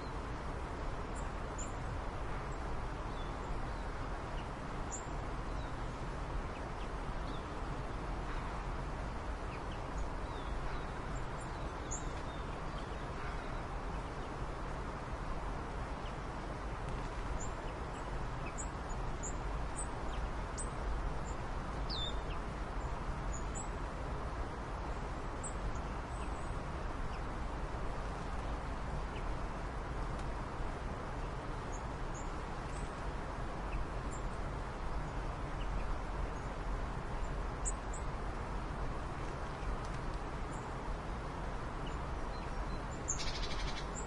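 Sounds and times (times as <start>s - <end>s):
steady background noise: 0.0s - 44.0s
faint high bird chirps: 42.3s - 44.0s.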